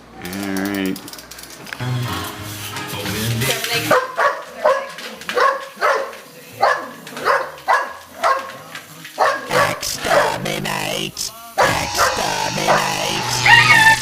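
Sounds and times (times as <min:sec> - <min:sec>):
dog barking: 0:03.9 - 0:08.6, 0:09.2 - 0:10.4, 0:11.6 - 0:12.2.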